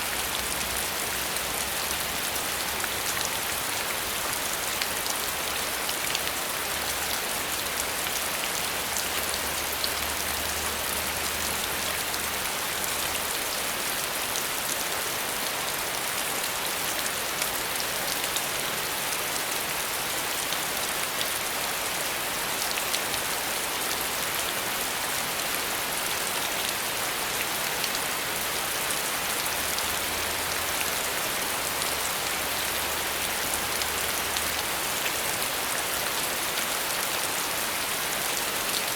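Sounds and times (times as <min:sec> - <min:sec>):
rain drops hitting a surface: 0:00.0 - 0:38.9.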